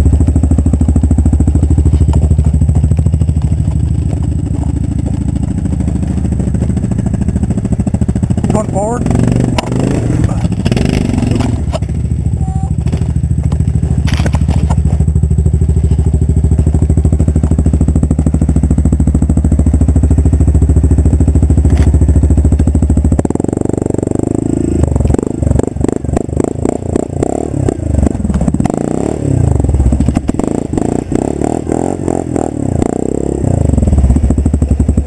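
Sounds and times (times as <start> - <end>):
atv engine at high revs: 0.0 - 35.0.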